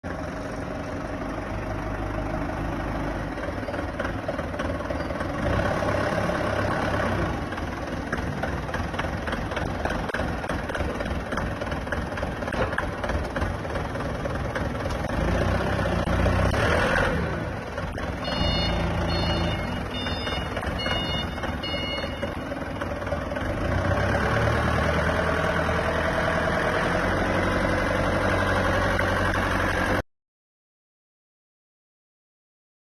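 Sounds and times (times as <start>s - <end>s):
tractor engine running: 0.0s - 30.0s
short high beeps: 18.2s - 22.4s.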